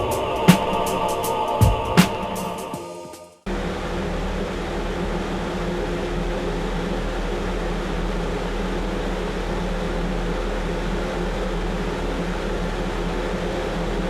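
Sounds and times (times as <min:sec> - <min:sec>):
low machine hum: 0:00.0 - 0:02.0, 0:03.5 - 0:14.0
wind machine air blast: 0:00.0 - 0:06.5.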